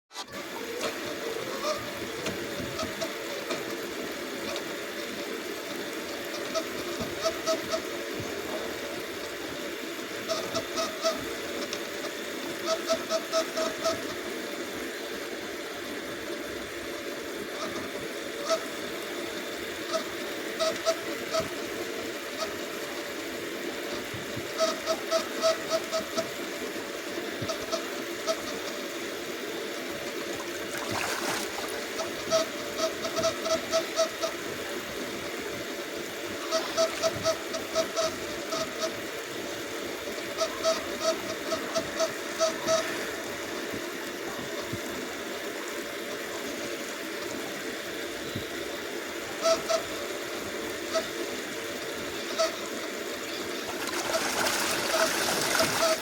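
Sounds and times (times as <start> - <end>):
steady background hiss: 0.4 - 56.0
waterfowl honking: 0.8 - 2.0, 10.2 - 11.7, 17.6 - 18.8, 24.6 - 26.3, 30.1 - 34.4, 36.3 - 39.0, 40.1 - 43.1, 49.4 - 50.0, 52.2 - 56.0.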